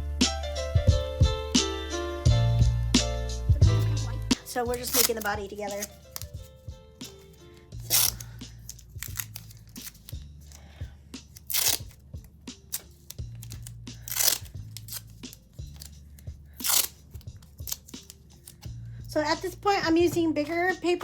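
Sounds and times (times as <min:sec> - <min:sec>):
background music with bass: 0:00.0 - 0:21.0
paper crinkling tears: 0:04.4 - 0:10.6, 0:11.3 - 0:12.0, 0:12.7 - 0:18.7.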